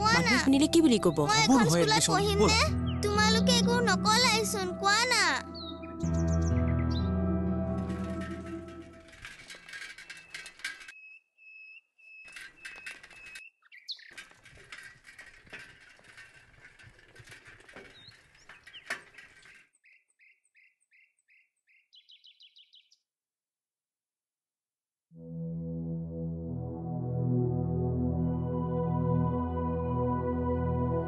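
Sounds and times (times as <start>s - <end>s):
bird calling notes and trill: 0.1s - 9.0s, 9.9s - 14.1s, 19.7s - 23.0s
chorus of chirping birds: 5.5s - 7.2s, 9.9s - 14.5s, 17.8s - 23.0s.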